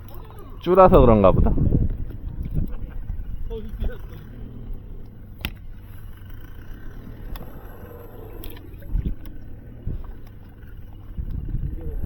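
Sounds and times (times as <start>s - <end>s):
dull low thumps: 0.0s - 5.8s
wind and water rumble: 0.0s - 12.0s.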